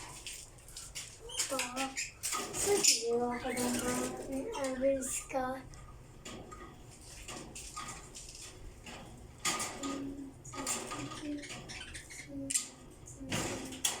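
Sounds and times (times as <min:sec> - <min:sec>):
lovebirds chirping and squeaking: 0:00.0 - 0:06.0, 0:09.8 - 0:13.6.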